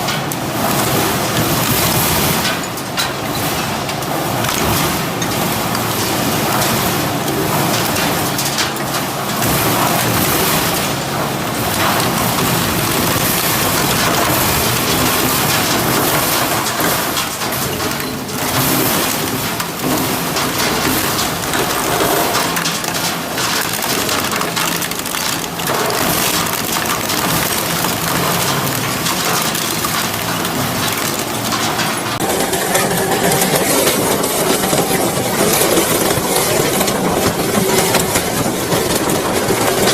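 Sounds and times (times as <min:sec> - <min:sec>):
shredder crunching scrap metal: 0:00.0 - 0:39.9
machine drive hum: 0:18.3 - 0:39.9.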